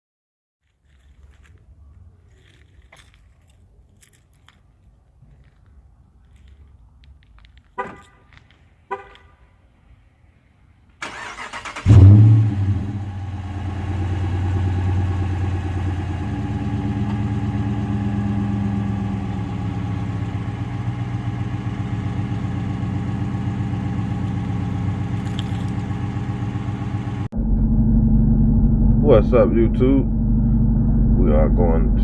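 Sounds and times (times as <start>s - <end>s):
car engine revving and idling: 11.1s - 32.0s.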